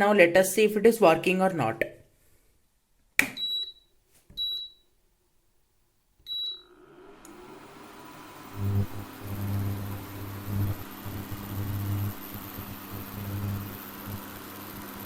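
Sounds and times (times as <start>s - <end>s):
short high beeps: 4.4s - 4.8s, 6.3s - 6.7s
cooling fan whir: 7.1s - 15.0s.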